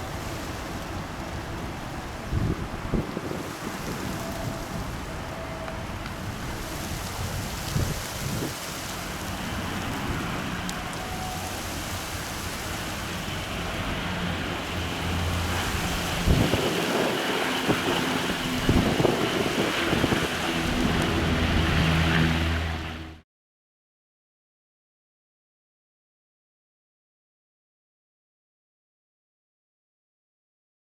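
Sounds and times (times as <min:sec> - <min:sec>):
wind buffeting microphone: 0:00.0 - 0:23.0
jet airliner engines rumbling: 0:00.0 - 0:23.2.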